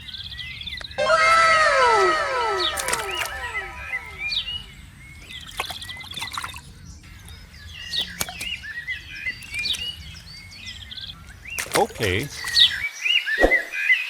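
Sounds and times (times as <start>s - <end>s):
water sloshing and splashing: 0.0s - 12.9s
short bird chirps: 1.0s - 12.8s
sharp splash-like strokes: 2.2s - 10.3s, 11.4s - 12.8s.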